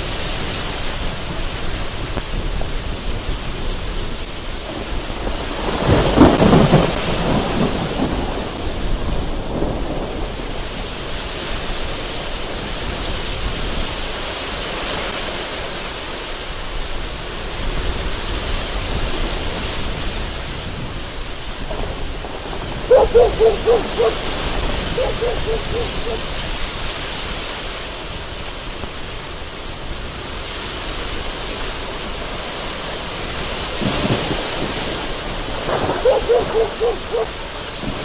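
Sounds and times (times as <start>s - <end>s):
heavy rain hissing: 0.0s - 38.0s
thunder rumble: 4.6s - 11.2s, 20.7s - 26.4s, 33.7s - 38.0s.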